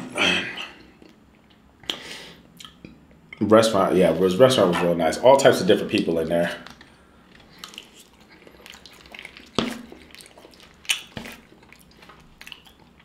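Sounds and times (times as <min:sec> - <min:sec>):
wet chewing and mouth smacks: 0:00.8 - 0:03.3, 0:06.6 - 0:13.0.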